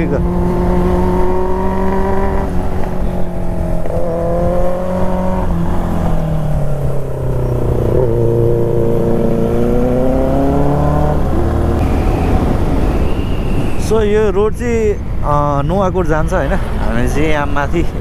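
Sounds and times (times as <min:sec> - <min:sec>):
motorcycle engine shifting gears: 0:00.0 - 0:13.5.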